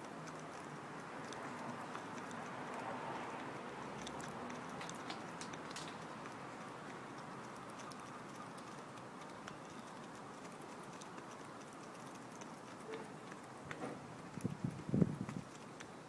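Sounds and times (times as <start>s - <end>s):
pigeons pecking taps: 0.0s - 16.0s.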